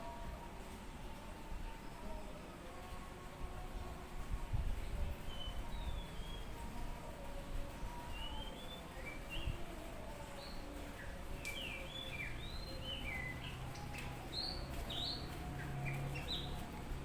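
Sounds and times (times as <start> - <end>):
bird singing whistled notes: 5.2 - 6.6, 8.1 - 9.6, 10.4 - 16.6.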